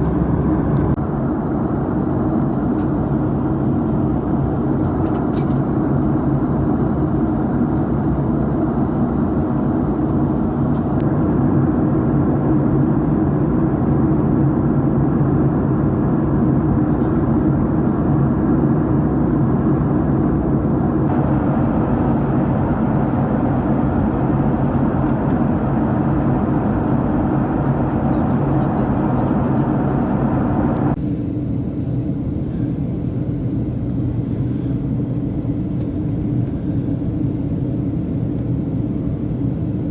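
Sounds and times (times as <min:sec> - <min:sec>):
high whine: 0:00.0 - 0:01.0, 0:07.0 - 0:31.0
airplane cabin engine rumble: 0:00.0 - 0:39.9.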